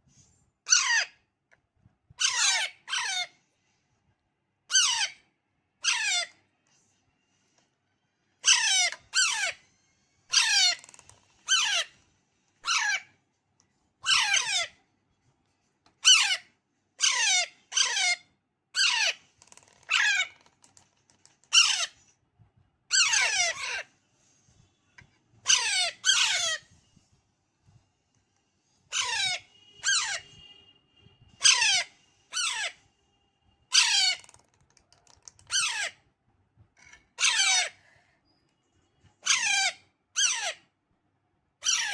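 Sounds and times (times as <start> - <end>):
parrot chick calling: 5.8 - 6.4, 10.3 - 12.0, 12.6 - 13.1, 14.0 - 14.8, 17.0 - 18.2, 21.5 - 22.0, 22.9 - 23.9, 25.4 - 26.7, 28.9 - 30.5, 31.4 - 32.8, 35.5 - 36.0, 37.1 - 37.8, 39.2 - 40.6, 41.6 - 41.9.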